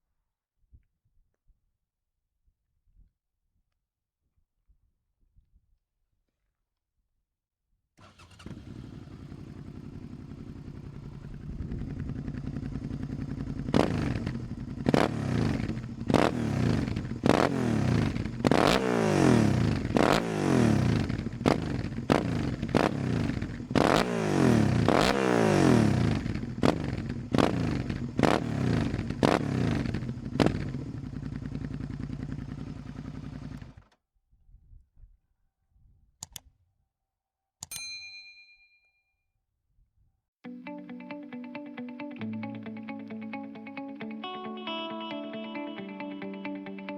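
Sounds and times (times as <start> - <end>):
motorcycle engine revving: 8.0 - 34.0.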